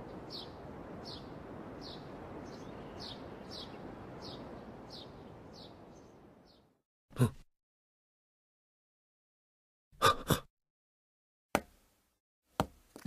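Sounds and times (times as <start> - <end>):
small bird chirping: 0.0 - 6.7
outdoor ambience hiss: 0.0 - 6.8.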